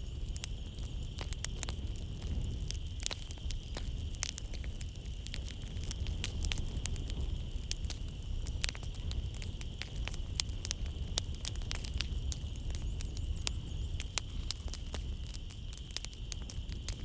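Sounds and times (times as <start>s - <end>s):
wood fire crackling: 0.0s - 17.0s
night insects chorus: 8.2s - 17.0s.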